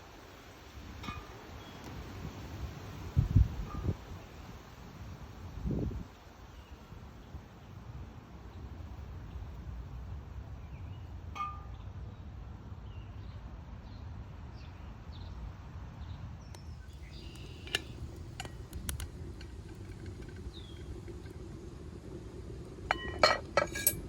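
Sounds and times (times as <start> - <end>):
birds chirping: 16.6 - 21.5
steady low rumble: 16.8 - 24.0
metal utensils clinking: 17.4 - 20.4, 22.9 - 24.0.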